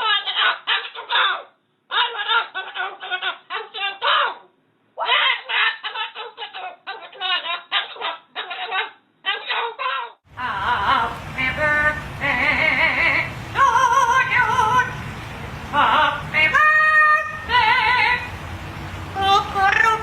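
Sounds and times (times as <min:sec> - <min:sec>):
person singing with vibrato: 0:10.3 - 0:18.5, 0:19.1 - 0:20.0.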